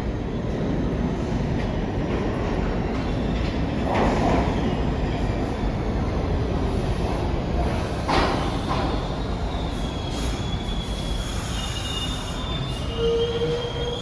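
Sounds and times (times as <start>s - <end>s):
subway train rumbling: 0.0s - 14.0s
high-pitched wheel squeal: 8.9s - 14.0s.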